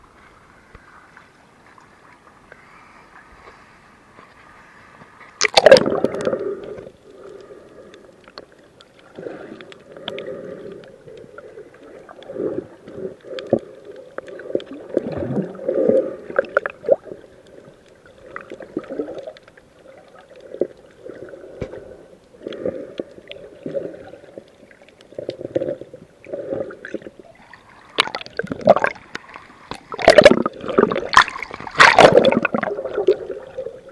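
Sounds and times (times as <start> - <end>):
muffled underwater gurgling: 28.0 - 29.0, 29.8 - 33.9
loud water splash: 30.0 - 32.8.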